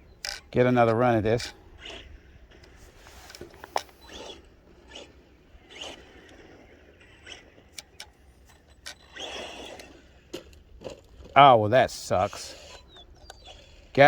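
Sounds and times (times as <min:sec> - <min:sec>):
small clicks: 0:00.0 - 0:11.4, 0:12.6 - 0:14.0
toy truck tyres scraping on dirt: 0:00.0 - 0:14.0
hissy scrapes: 0:02.8 - 0:06.0.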